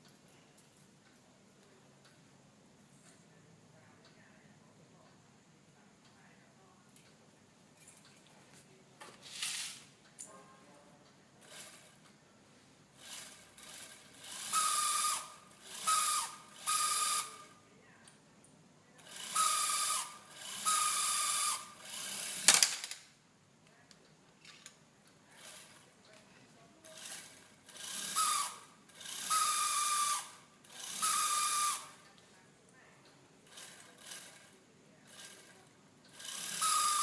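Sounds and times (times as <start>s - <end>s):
small electric motor whining: 13.0s - 17.5s, 19.1s - 22.4s, 27.0s - 32.0s, 36.1s - 37.0s.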